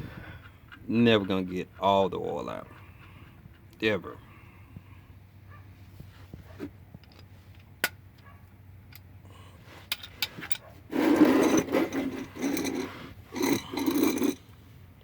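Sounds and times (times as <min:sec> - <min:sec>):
drain pan scraping over ground: 0:10.9 - 0:14.4.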